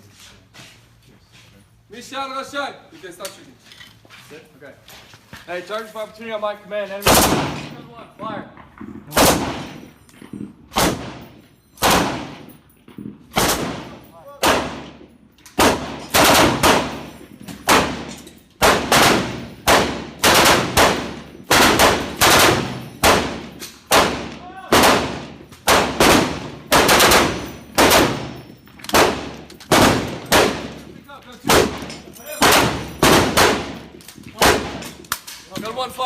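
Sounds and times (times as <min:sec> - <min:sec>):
machine-gun fire echoing: 0:07.1 - 0:07.8, 0:09.1 - 0:09.8, 0:10.7 - 0:12.5, 0:13.3 - 0:34.9.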